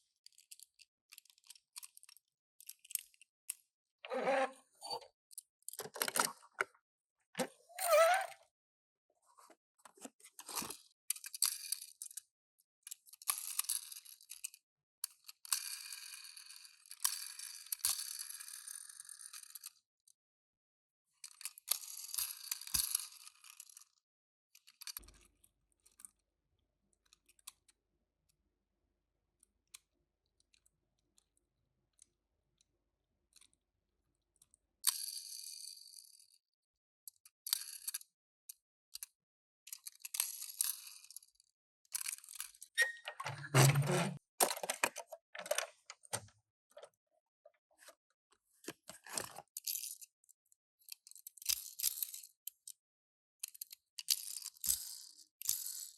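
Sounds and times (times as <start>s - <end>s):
toy packaging crinkling: 44.4s - 46.2s.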